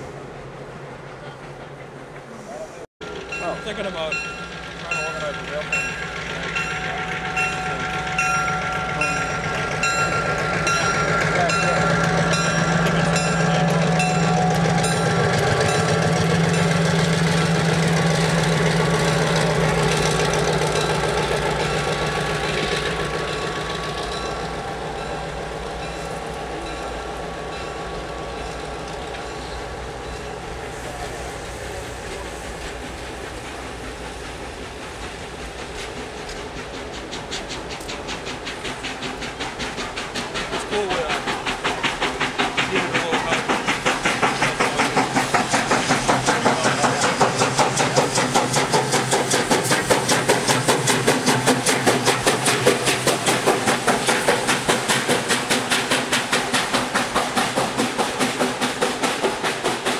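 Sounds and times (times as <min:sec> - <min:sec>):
diesel locomotive engine drone: 0:00.0 - 0:59.9
wheels clacking on rail joints: 0:03.0 - 0:59.9.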